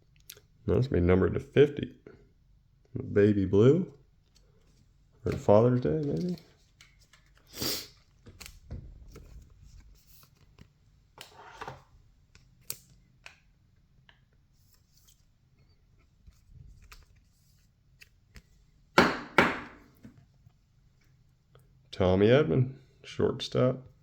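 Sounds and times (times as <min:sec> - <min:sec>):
cards ticking and rustling: 0:05.3 - 0:10.8.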